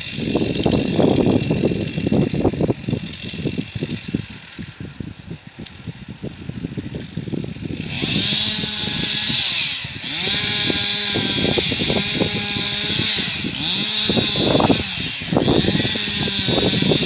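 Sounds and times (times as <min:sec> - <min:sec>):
tractor engine under load: 0:07.8 - 0:17.0.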